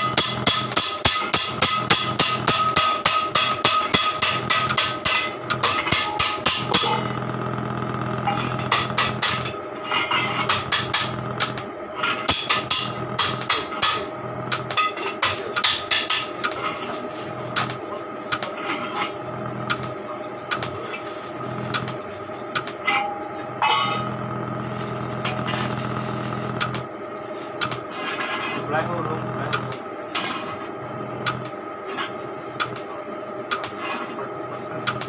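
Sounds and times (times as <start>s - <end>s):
hammer striking metal: 0.0s - 7.0s, 12.3s - 16.4s, 22.8s - 24.2s.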